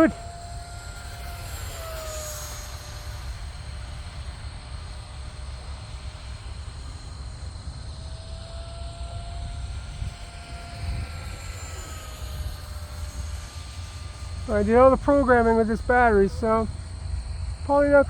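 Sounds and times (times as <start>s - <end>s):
rc jet fan whine: 0.0s - 18.0s
wind on microphone: 9.1s - 17.0s.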